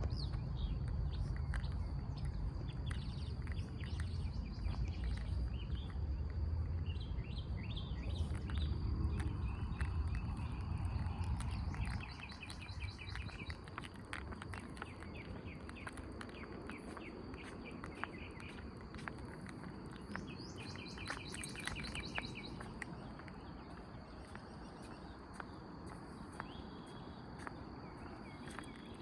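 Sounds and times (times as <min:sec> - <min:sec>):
birds chirping: 0:00.0 - 0:29.0
footsteps on a path: 0:00.0 - 0:29.0.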